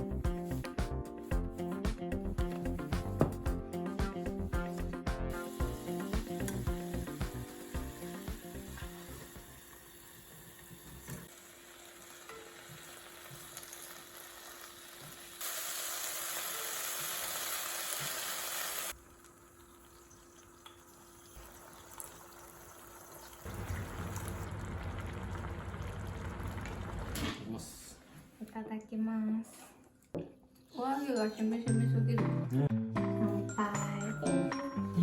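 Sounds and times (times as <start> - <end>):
food sizzling in a frying pan: 5.4 - 19.0.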